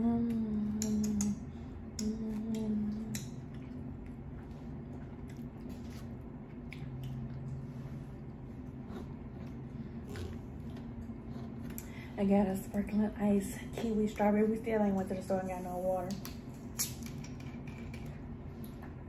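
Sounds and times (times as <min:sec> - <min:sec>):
person humming mm: 0:00.0 - 0:03.2
chewing green beans: 0:02.3 - 0:11.9
wet mouth clicks and smacks: 0:16.1 - 0:18.9.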